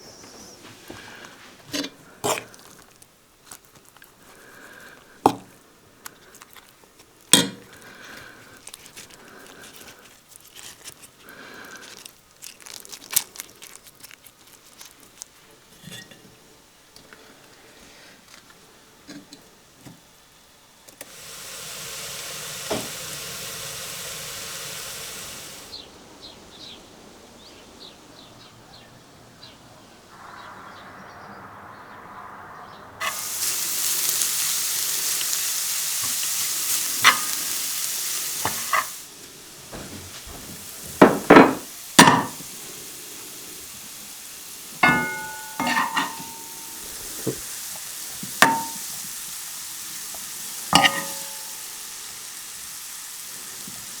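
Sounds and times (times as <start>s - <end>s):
food sizzling in a frying pan: 17.8s - 25.8s, 33.0s - 54.0s
utensil knocking in a pan: 39.7s - 42.5s, 44.8s - 47.4s, 48.3s - 49.1s, 50.8s - 51.6s
ringing metal clink: 44.8s - 46.8s.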